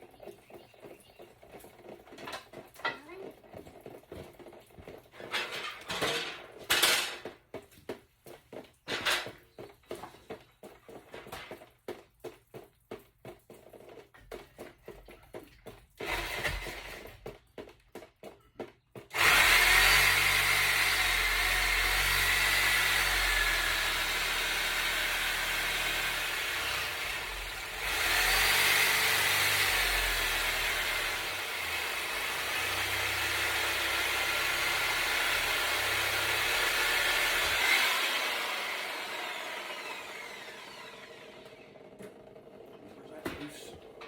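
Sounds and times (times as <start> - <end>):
power tool cutting: 16.0 - 17.1, 19.1 - 43.3.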